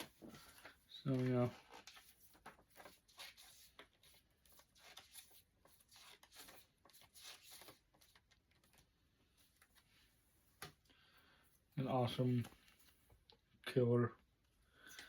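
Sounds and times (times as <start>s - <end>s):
cd packaging rustling and clicking: 0.0s - 9.9s.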